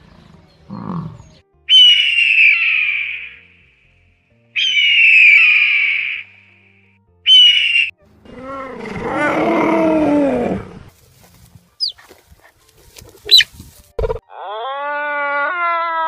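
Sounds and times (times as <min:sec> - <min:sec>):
large animal long call: 0:14.1 - 0:16.0.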